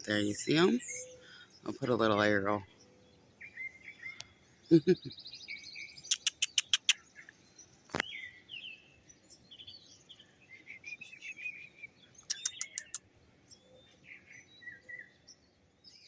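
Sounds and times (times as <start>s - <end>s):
mockingbird singing: 0.0s - 16.0s.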